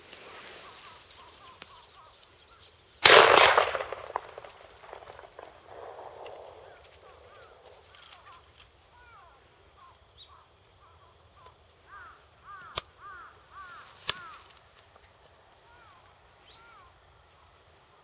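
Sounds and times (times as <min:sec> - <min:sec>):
bird calling: 0:00.6 - 0:14.5
sharp snaps: 0:03.0 - 0:08.3, 0:14.0 - 0:14.6.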